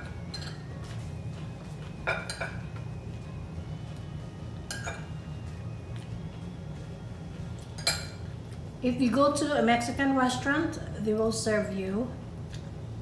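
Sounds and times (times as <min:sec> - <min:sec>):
dishes and utensils clinking: 0:00.0 - 0:01.1, 0:01.8 - 0:02.8, 0:04.7 - 0:05.2, 0:07.6 - 0:08.3
steady low hum: 0:00.0 - 0:13.0.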